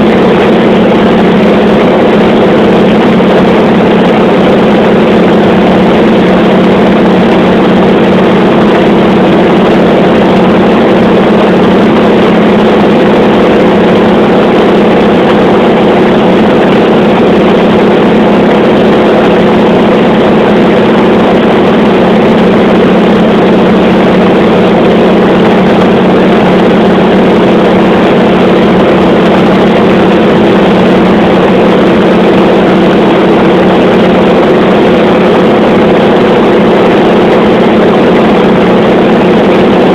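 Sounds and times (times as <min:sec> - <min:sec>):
aircraft engine droning: 0:00.0 - 0:39.9.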